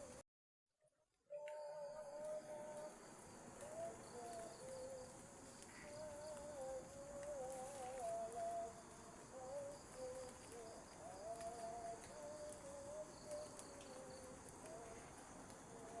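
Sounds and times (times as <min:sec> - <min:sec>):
faint wavering tone: 0:01.3 - 0:03.0
insects chirring: 0:01.3 - 0:16.0.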